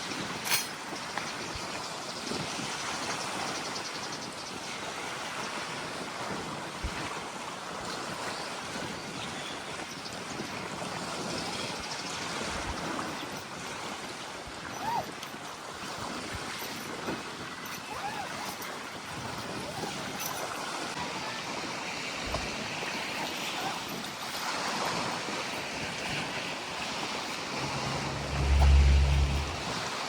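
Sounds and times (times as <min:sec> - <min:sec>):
sea waves on shore: 0:04.9 - 0:29.8
wind on microphone: 0:27.2 - 0:29.8.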